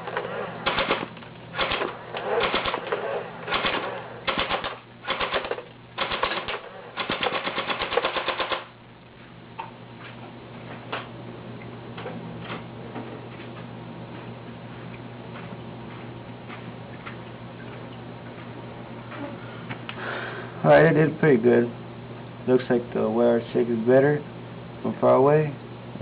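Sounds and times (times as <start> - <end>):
airsoft rifle firing bursts: 0.0 - 8.8.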